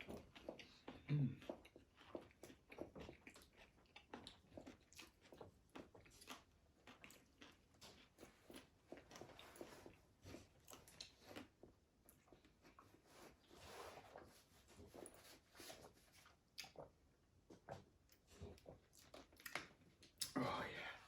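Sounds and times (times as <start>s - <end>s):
person chewing food: 0.0s - 20.4s
mouth clicks and wet smacks: 16.5s - 17.0s.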